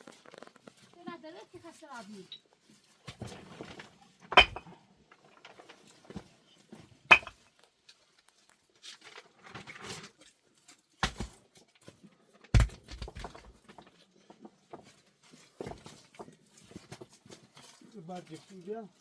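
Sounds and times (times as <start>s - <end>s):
sharp knocks: 7.1s - 7.3s
soft scraping and rustling: 13.8s - 19.0s.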